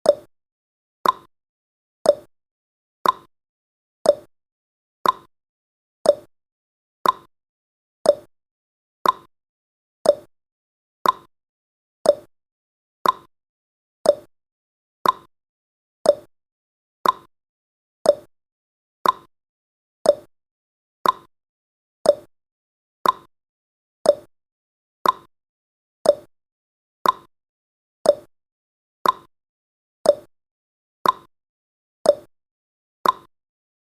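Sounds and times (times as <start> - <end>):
timer ticking: 0.0 - 0.3, 1.0 - 1.3, 2.0 - 2.3, 3.0 - 3.3, 4.0 - 4.3, 5.0 - 5.3, 6.0 - 6.3, 7.0 - 7.3, 8.0 - 8.3, 9.0 - 9.3, 10.0 - 10.3, 11.0 - 11.3, 12.0 - 12.3, 13.0 - 13.3, 14.0 - 14.3, 15.0 - 15.3, 16.0 - 16.3, 17.0 - 17.3, 18.0 - 18.3, 19.0 - 19.3, 20.0 - 20.3, 21.0 - 21.3, 22.0 - 22.3, 23.0 - 23.3, 24.0 - 24.3, 25.0 - 25.3, 26.0 - 26.3, 27.0 - 27.3, 28.0 - 28.3, 29.0 - 29.3, 30.0 - 30.3, 31.0 - 31.3, 32.0 - 32.3, 33.0 - 33.3.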